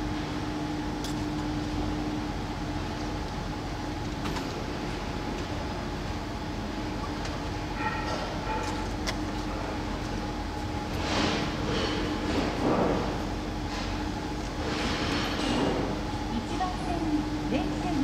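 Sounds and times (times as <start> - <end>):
electric train hum: 0.0 - 18.0.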